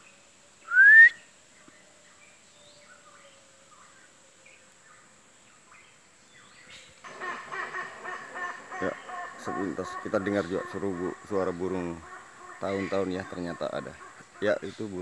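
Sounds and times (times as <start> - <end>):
scattered bird calls: 0.0 - 15.0
bird giving rising whistle: 0.7 - 1.3.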